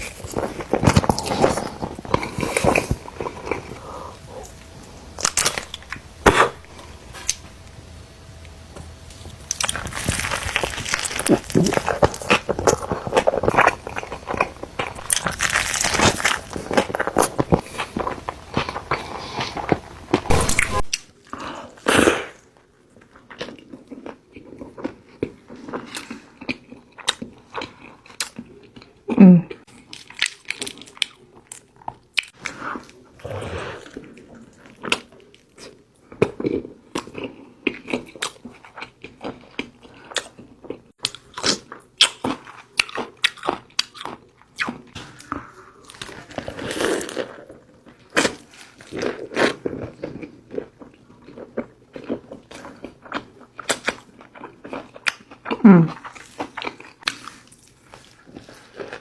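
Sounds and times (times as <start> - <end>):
crunchy bites and chewing: 0.0 - 3.8, 9.1 - 21.2.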